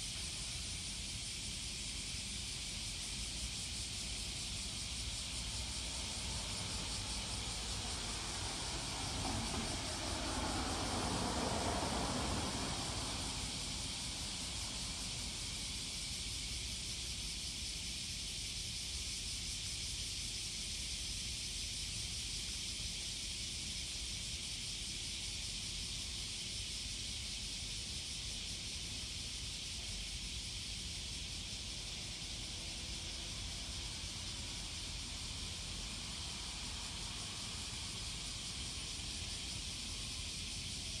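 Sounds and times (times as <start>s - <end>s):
faint low town rumble: 0.0s - 41.0s
steady outdoor hiss: 0.0s - 41.0s
passing train: 2.2s - 16.9s, 24.6s - 41.0s.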